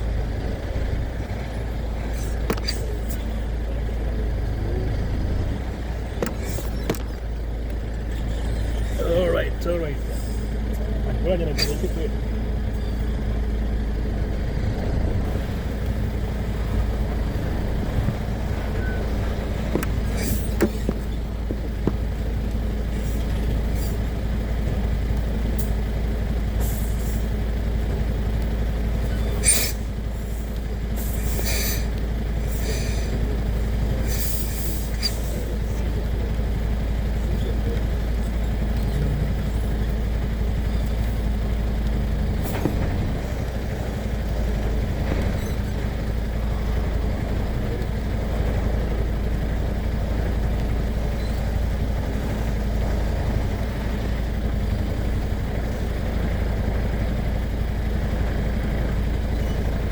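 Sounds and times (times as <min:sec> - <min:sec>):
heavy truck engine droning: 0:00.0 - 0:59.9.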